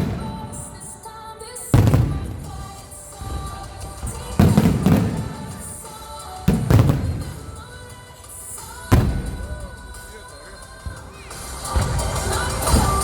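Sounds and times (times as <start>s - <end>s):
firework shells booming: 0.0s - 10.2s
music playing: 0.0s - 13.0s.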